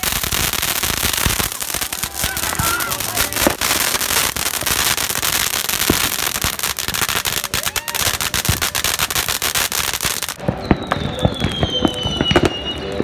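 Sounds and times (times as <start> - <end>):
firework bangs: 0.0 - 13.0
fireworks crackling and popping: 0.0 - 13.0
falling firework whistle: 7.1 - 13.0.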